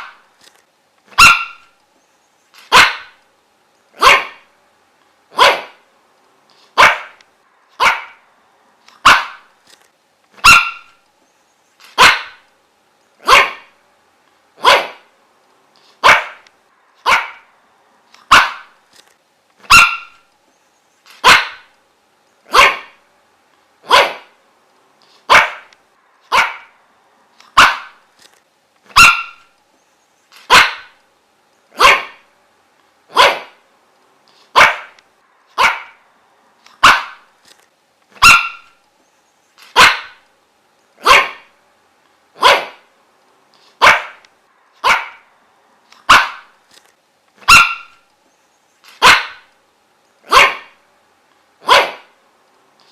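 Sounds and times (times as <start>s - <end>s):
dog barking: 1.1s - 1.7s, 2.7s - 3.2s, 4.0s - 4.5s, 5.3s - 5.8s, 6.8s - 7.2s, 7.8s - 8.2s, 9.0s - 9.5s, 10.4s - 11.0s, 12.0s - 12.4s, 13.2s - 13.8s, 14.6s - 15.1s, 16.0s - 16.4s, 17.0s - 17.5s, 18.3s - 18.8s, 19.6s - 20.2s, 21.2s - 21.7s, 22.5s - 23.0s, 23.8s - 24.4s, 25.3s - 25.7s, 26.3s - 26.8s, 27.5s - 28.0s, 28.9s - 29.5s, 30.4s - 31.0s, 31.8s - 32.3s, 33.1s - 33.6s, 34.5s - 35.0s, 35.6s - 36.0s, 36.8s - 37.3s, 38.2s - 38.8s, 39.7s - 40.2s, 41.0s - 41.5s, 42.4s - 42.9s, 43.8s - 44.2s, 44.8s - 45.3s, 46.0s - 46.5s, 47.4s - 48.0s, 49.0s - 49.5s, 50.3s - 50.8s, 51.6s - 52.2s.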